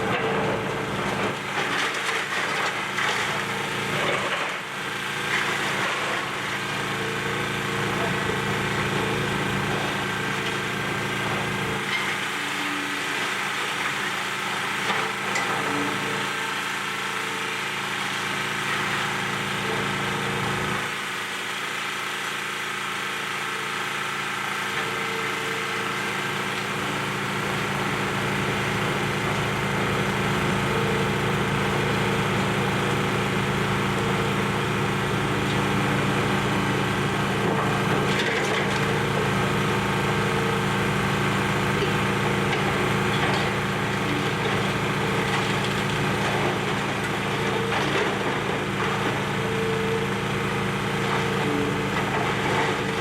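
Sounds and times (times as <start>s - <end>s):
excavator diesel engine: 0.0s - 53.0s.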